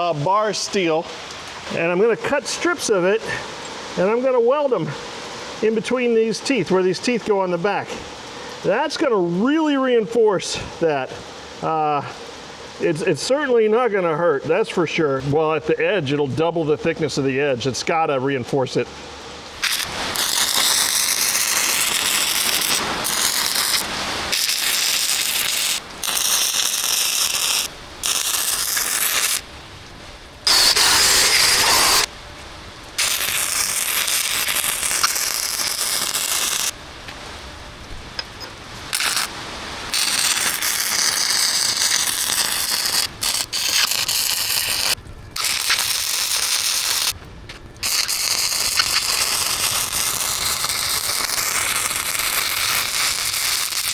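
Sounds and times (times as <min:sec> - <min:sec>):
wire welder arcing crackle: 0:19.5 - 0:53.9.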